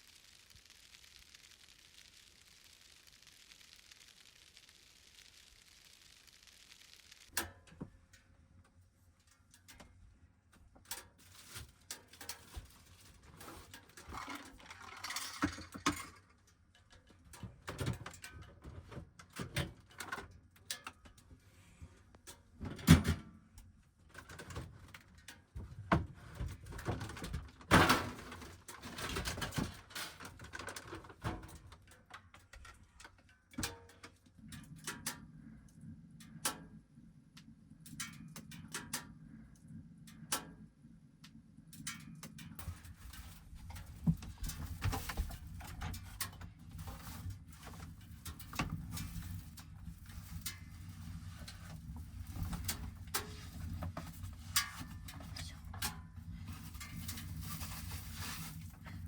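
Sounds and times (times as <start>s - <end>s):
low steady hum: 0.0s - 7.4s
objects clicking and clattering: 10.9s - 21.0s.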